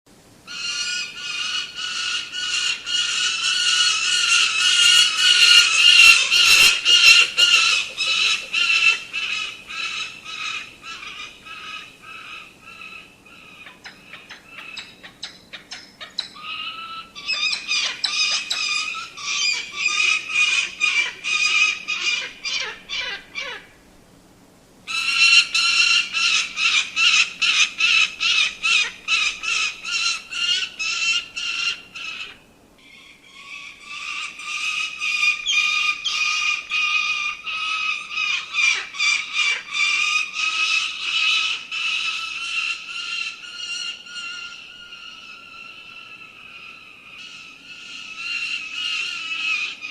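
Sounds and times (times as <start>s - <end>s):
falcon calling sharp notes: 0.5s - 13.0s.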